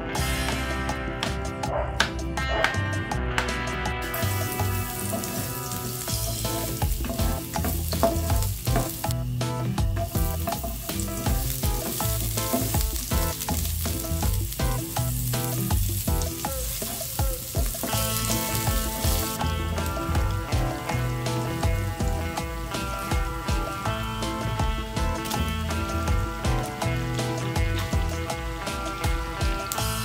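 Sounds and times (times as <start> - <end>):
onion and garlic sizzling in oil: 4.0 - 30.0
spatula stirring and tapping a pan: 4.6 - 9.2, 9.8 - 21.0.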